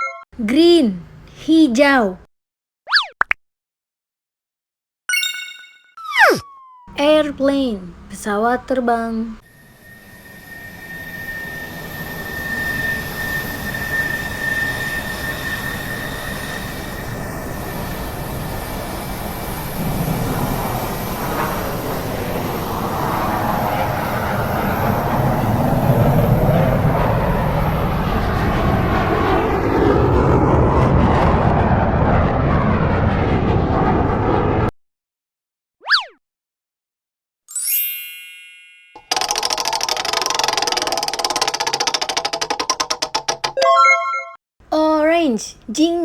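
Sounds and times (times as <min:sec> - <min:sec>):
airplane engines whining and roaring: 0:09.4 - 0:34.7.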